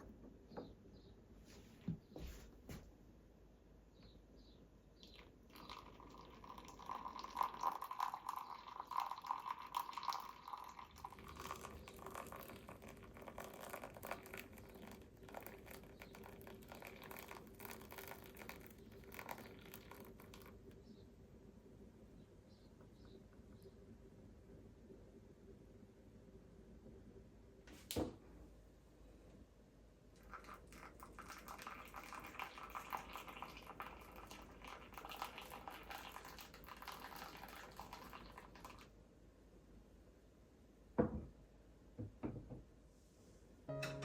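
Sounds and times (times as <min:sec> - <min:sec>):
faint steady hum: 0:00.0 - 0:44.0
liquid pouring and trickling: 0:05.0 - 0:20.8, 0:30.2 - 0:38.9.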